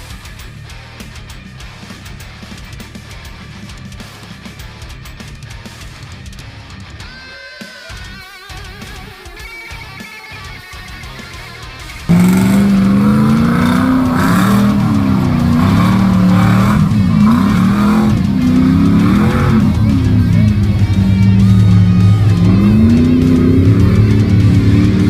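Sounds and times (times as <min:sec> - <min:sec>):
truck engine revving: 0:12.1 - 0:25.0.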